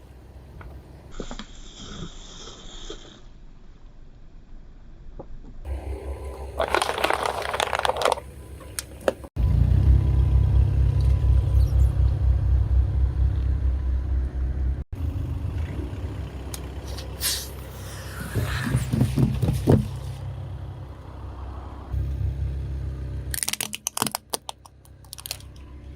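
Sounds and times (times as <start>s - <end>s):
low car engine rumble: 0.0s - 1.5s, 3.5s - 25.9s
car tyre crushing objects: 5.8s - 9.3s, 23.3s - 25.6s.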